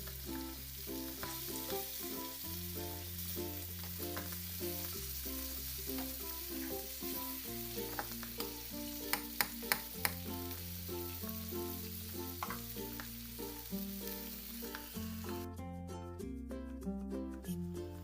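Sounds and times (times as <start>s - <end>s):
food sizzling in a pan: 0.0s - 15.5s
light background music: 0.0s - 18.0s.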